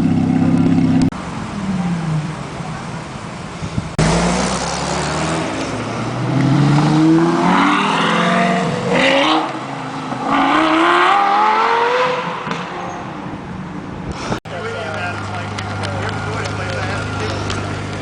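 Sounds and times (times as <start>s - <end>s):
sports car engine accelerating: 3.9s - 12.6s.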